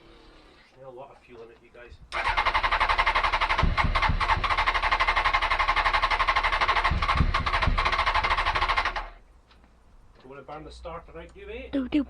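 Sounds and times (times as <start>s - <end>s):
electric starter cranking engine: 2.1s - 9.2s
low thuds: 3.6s - 4.6s, 6.9s - 8.0s.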